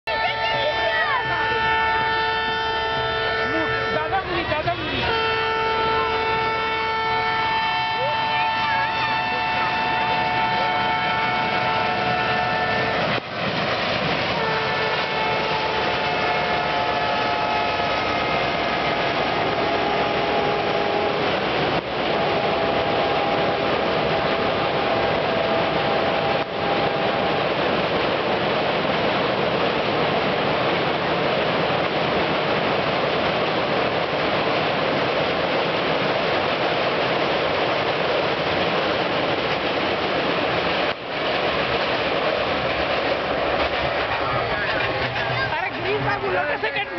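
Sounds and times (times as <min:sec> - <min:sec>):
train running over bridge: 0:00.0 - 0:46.9
locomotive horn blasts: 0:00.1 - 0:04.4, 0:05.0 - 0:13.2, 0:14.3 - 0:27.7.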